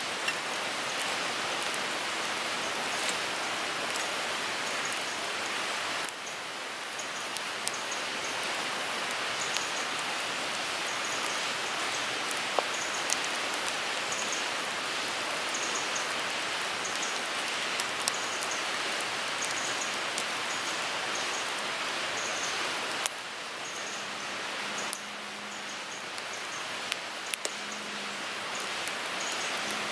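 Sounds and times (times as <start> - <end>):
wood fire crackling and popping: 0.0 - 6.2, 12.1 - 13.8, 16.0 - 20.3, 26.1 - 27.6, 28.6 - 29.9.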